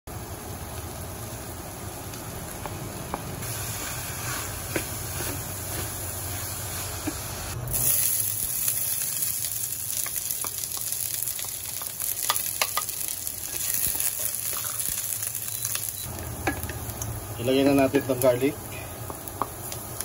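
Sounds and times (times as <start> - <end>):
food sizzling in hot oil: 0.1 - 20.0.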